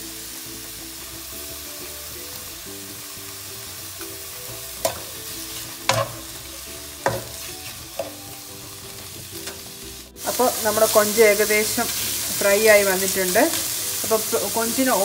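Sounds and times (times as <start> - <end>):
prawns sizzling in hot oil: 0.0 - 15.0
spatula knocking against pan: 5.8 - 6.2, 7.0 - 7.4.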